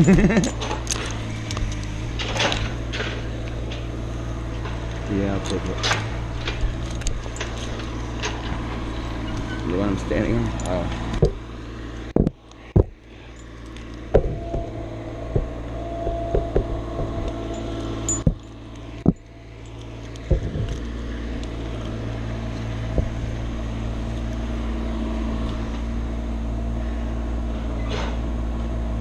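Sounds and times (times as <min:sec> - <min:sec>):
engine running steadily: 0:00.0 - 0:29.0
sharp knocks and clicks: 0:11.1 - 0:11.4, 0:12.1 - 0:13.0, 0:14.1 - 0:21.0, 0:22.9 - 0:23.5.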